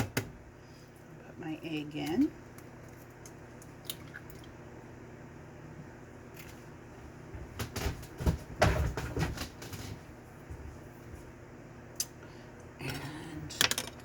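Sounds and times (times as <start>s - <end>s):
kitchen items clicking and knocking: 13.5s - 14.0s.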